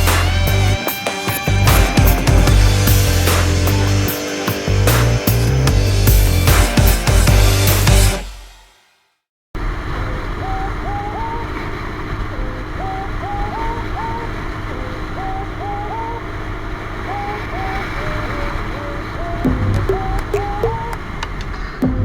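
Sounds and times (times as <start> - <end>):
wind and road noise: 9.6 - 21.9.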